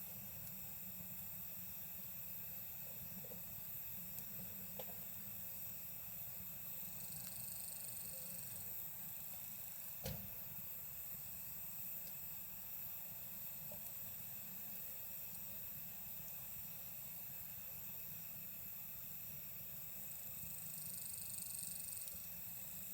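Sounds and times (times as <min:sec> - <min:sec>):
campfire crackling: 0:00.2 - 0:07.5, 0:08.1 - 0:17.3.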